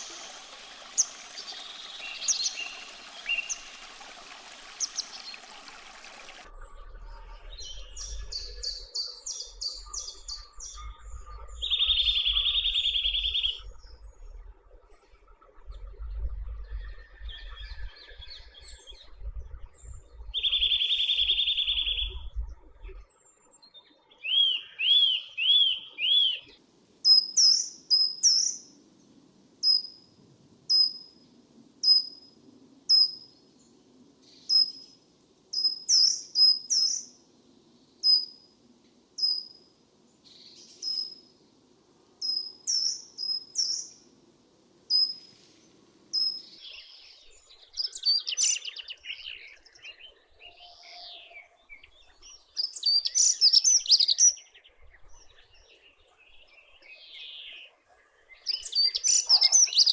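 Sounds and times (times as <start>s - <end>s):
wild birds calling: 0.0s - 6.4s, 58.5s - 59.9s.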